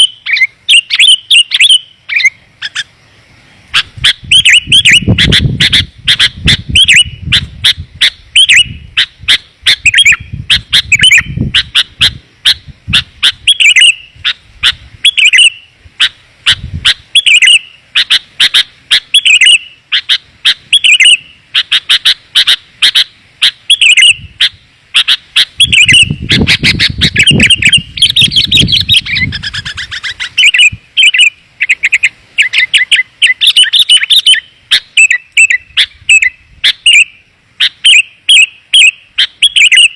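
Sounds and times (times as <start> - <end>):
bulbul chirping: 0.0 - 2.9, 3.7 - 39.9.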